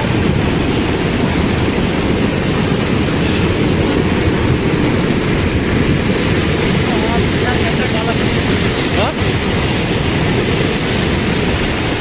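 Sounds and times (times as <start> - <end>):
floodwater rushing in a stream: 0.0 - 12.0.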